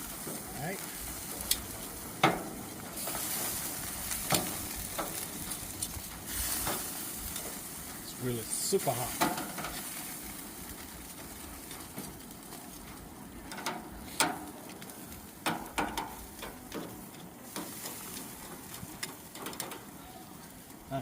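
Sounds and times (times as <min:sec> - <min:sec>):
meat sizzling on a grill: 0:00.0 - 0:21.0
sharp clicks and knocks: 0:15.4 - 0:17.7, 0:18.9 - 0:19.9.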